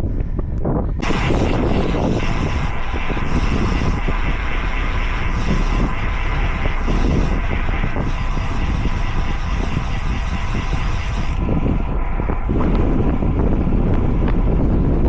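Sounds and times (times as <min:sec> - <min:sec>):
wind rush: 0:00.0 - 0:15.0
road noise from bicycle: 0:03.2 - 0:15.0.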